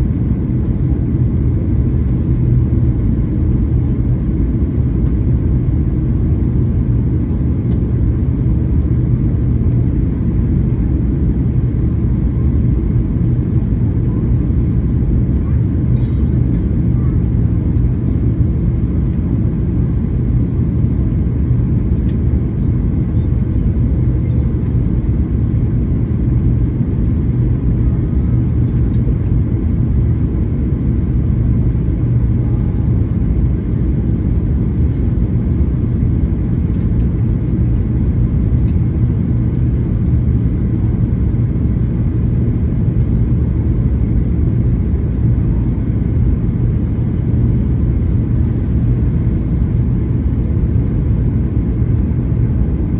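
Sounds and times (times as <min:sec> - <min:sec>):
airliner engine drone in cabin: 0:00.0 - 0:52.9.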